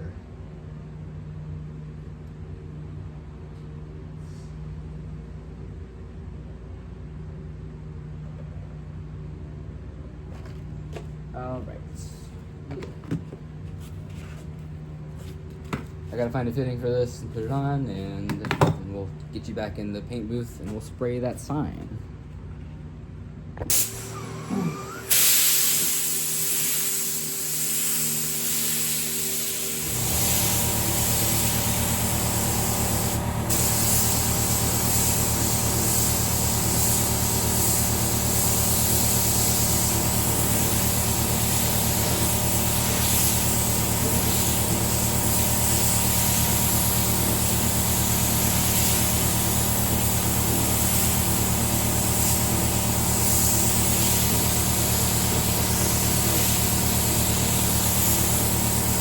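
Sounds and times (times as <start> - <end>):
air compressor humming: 23.6 - 59.0
compressed air hissing: 23.7 - 59.0.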